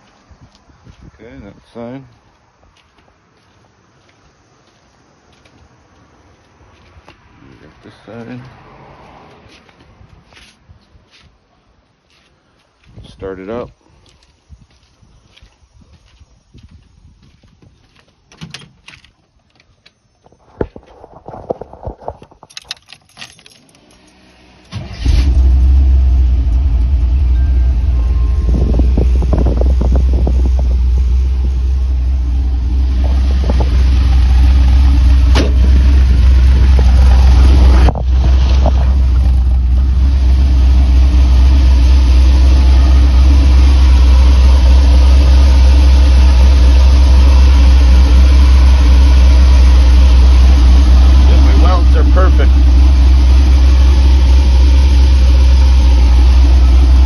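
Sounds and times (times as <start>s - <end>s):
van engine starting and running: 21.6s - 57.0s.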